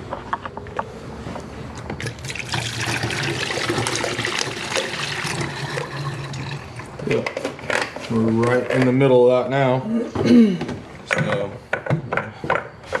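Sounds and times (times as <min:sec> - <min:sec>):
liquid trickling into reservoir: 0:02.0 - 0:07.0.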